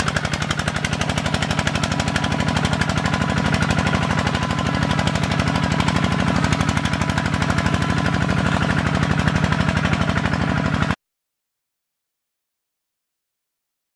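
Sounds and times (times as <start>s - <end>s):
tractor engine chugging: 0.0s - 11.0s.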